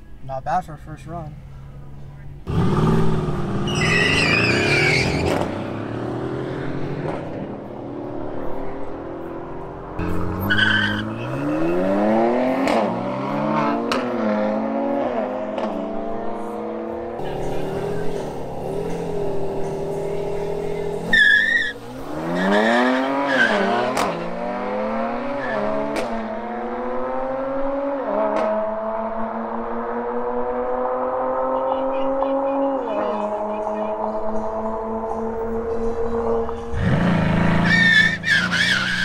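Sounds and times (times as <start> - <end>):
car engine revving: 2.4 - 39.0
tyre squeals: 3.6 - 5.5, 10.4 - 11.9, 21.0 - 23.8, 37.5 - 39.0.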